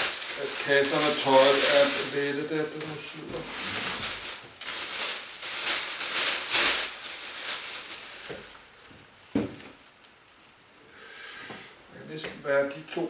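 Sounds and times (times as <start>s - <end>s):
clothes rustling: 0.0s - 9.8s.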